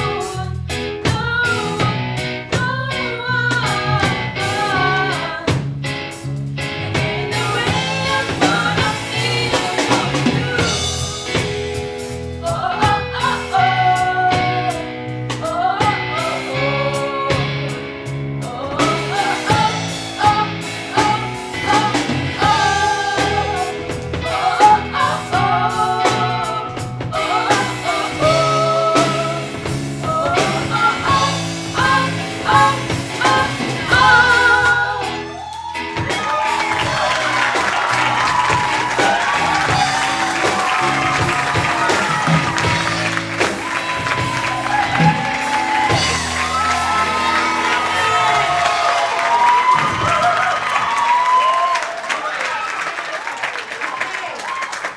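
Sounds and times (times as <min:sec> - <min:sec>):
person singing: 0:00.0 - 0:05.7, 0:06.8 - 0:11.7, 0:12.4 - 0:50.3
live band playing: 0:00.0 - 0:51.7.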